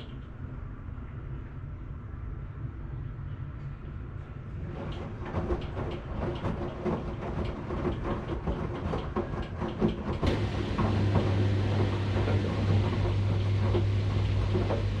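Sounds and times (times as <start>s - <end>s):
steady low hum: 0.0s - 15.0s
washing machine rumbling: 4.2s - 15.0s
washing machine clattering knocks: 4.7s - 15.0s.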